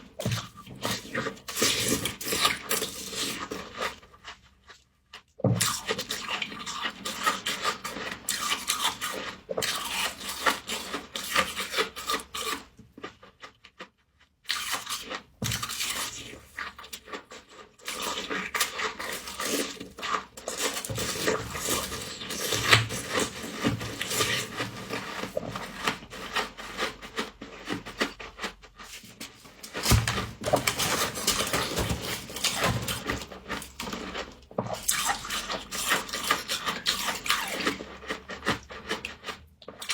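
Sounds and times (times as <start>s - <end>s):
frost being crunched and scraped: 14.5s - 39.9s.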